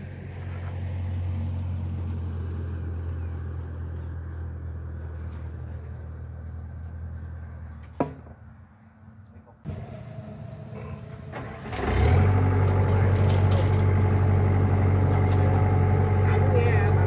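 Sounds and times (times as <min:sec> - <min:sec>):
excavator diesel engine rumbling: 0:09.4 - 0:17.0.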